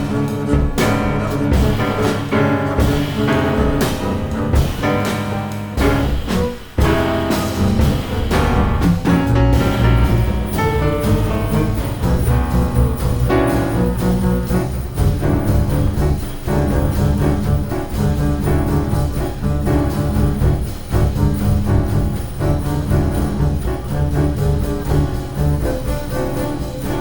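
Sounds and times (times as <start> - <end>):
double bass: 0.0 - 27.0
drums and cymbals: 0.0 - 27.0
jazz piano: 0.0 - 27.0.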